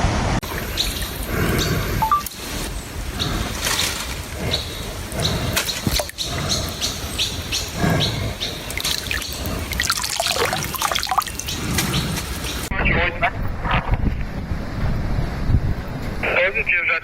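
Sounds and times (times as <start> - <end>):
birds chirping: 0.4 - 13.2.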